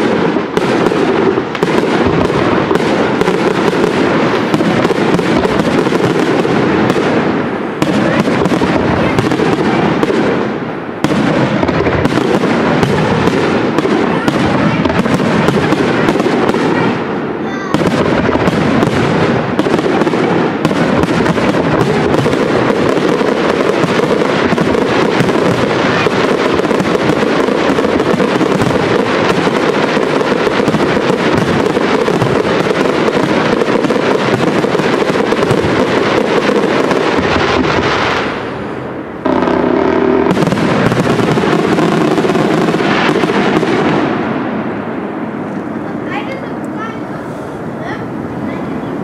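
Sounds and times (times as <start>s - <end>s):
fireworks bursting and crackling: 0.0s - 49.0s.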